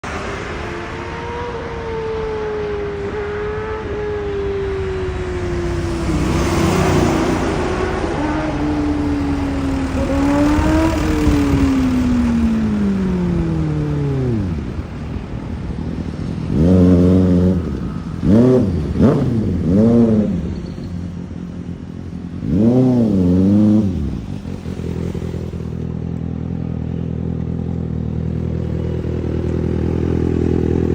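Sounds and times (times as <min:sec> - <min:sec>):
motorcycle engine revving: 0:00.1 - 0:30.9
motorcycle engine idling: 0:24.0 - 0:30.9.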